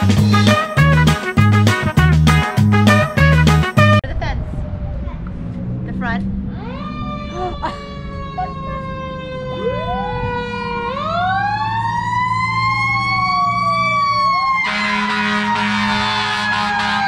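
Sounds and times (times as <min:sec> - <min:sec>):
fire engine siren wailing: 0:04.3 - 0:05.6, 0:06.4 - 0:17.0.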